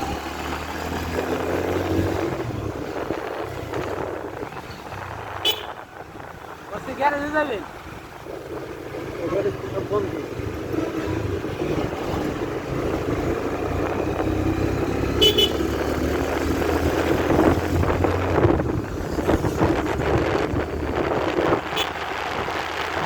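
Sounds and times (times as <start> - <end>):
motorcycle engine: 0.0 - 23.0
road noise: 0.0 - 23.0
motorcycle horn toot: 5.4 - 5.8, 15.1 - 15.7, 21.7 - 22.0.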